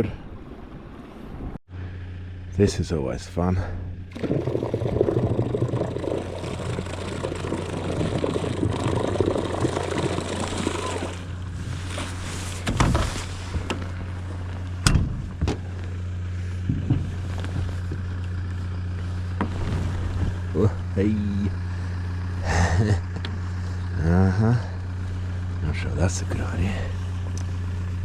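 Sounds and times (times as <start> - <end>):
water rushing along hull: 4.1 - 13.7
electric motor humming: 4.2 - 11.6.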